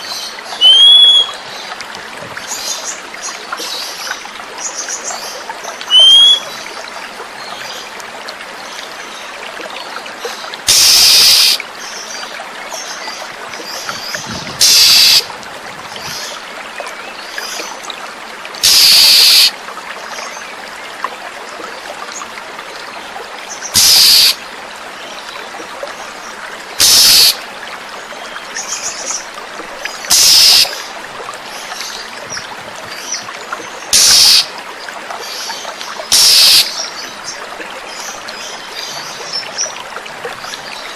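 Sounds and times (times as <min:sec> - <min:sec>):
water trickling: 0:00.0 - 0:40.9
faint high bird calls: 0:00.6 - 0:01.4, 0:05.9 - 0:06.5, 0:14.6 - 0:15.2, 0:23.8 - 0:24.4, 0:26.8 - 0:27.4, 0:30.1 - 0:30.8, 0:34.0 - 0:34.5, 0:36.1 - 0:36.8
harsh hissing bursts: 0:10.7 - 0:11.6, 0:14.6 - 0:15.2, 0:18.6 - 0:19.5, 0:23.8 - 0:24.4, 0:26.8 - 0:27.4, 0:30.1 - 0:30.7, 0:34.0 - 0:34.5, 0:36.1 - 0:36.7.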